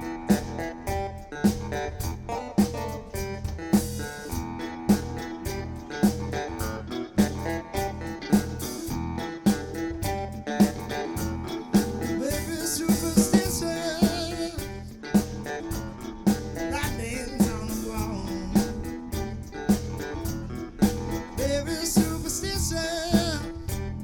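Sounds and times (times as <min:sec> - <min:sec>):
drum kit beat: 0:00.0 - 0:24.0
electric bass and guitar: 0:00.0 - 0:24.0
person singing: 0:12.0 - 0:14.9, 0:16.7 - 0:19.2, 0:21.2 - 0:23.8.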